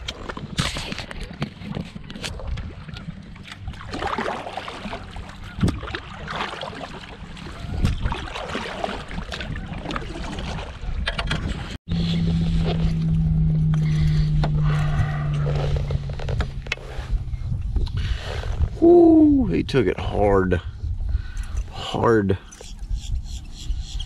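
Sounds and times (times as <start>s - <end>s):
water sloshing: 0.0s - 11.8s
wind noise on microphone: 7.3s - 24.0s
steady low hum: 11.9s - 19.5s.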